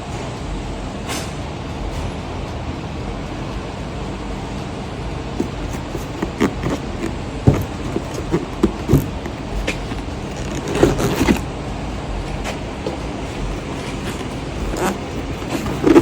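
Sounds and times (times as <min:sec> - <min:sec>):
low background rumble: 0:00.0 - 0:16.0
tools knocking and clicking: 0:05.4 - 0:11.4.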